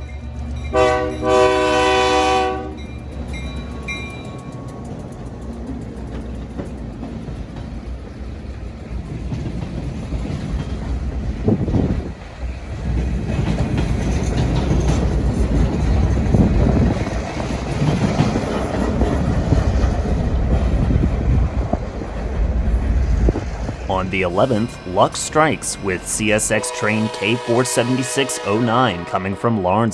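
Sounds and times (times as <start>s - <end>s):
train rumbling past: 0.0s - 29.9s.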